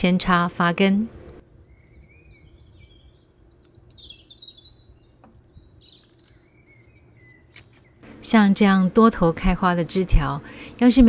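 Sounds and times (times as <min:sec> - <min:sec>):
small birds chirping: 0:01.4 - 0:08.1.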